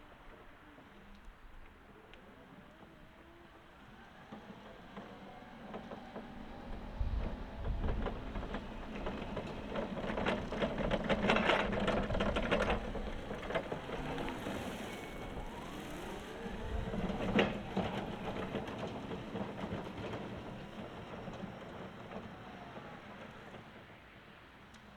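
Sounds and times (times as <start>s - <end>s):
electric forklift motor whine: 2.0s - 23.9s
clicking and rattling: 7.2s - 22.4s.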